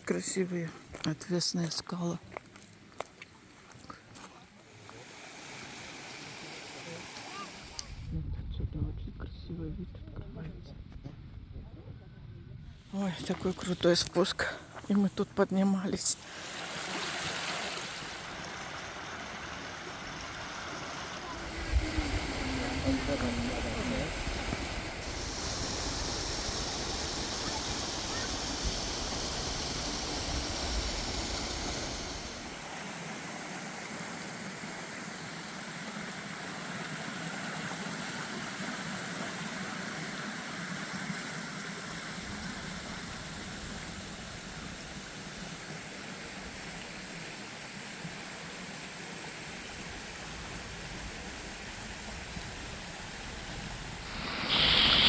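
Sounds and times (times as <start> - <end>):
mountain stream rushing: 4.7 - 8.0, 16.1 - 55.0.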